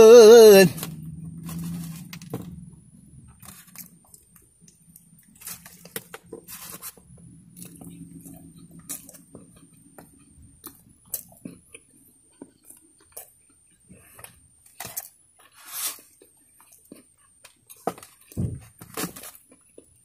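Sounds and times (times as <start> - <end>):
rustle: 0.7 - 2.4
chewing fried food: 3.2 - 20.0
low thump: 18.4 - 18.7.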